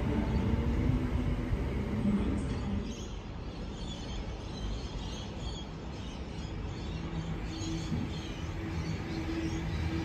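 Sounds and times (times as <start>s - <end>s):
low background rumble: 0.0s - 3.7s
steady low hum: 0.0s - 3.8s.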